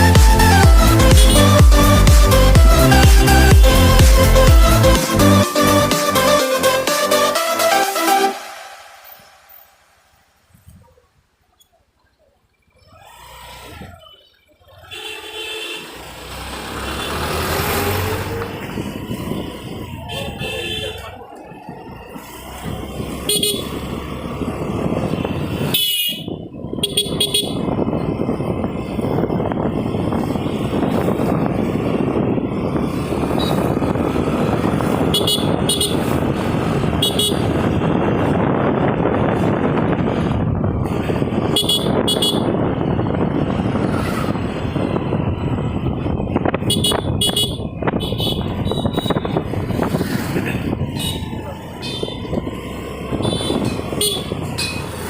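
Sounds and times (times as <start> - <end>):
wind and road noise: 0.0 - 55.0
vehicle horns honking: 0.8 - 4.4, 13.9 - 17.5, 20.0 - 21.2, 23.1 - 24.0, 25.1 - 27.8, 34.8 - 37.8, 41.3 - 42.8, 46.4 - 49.5, 50.5 - 54.9.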